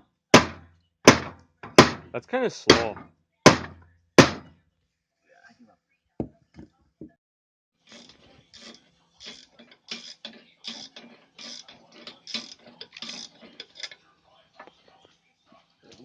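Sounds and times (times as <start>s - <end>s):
sharp knocks on metal: 0.3s - 2.1s, 2.7s - 4.5s
hand tool clicking strokes: 7.9s - 13.9s.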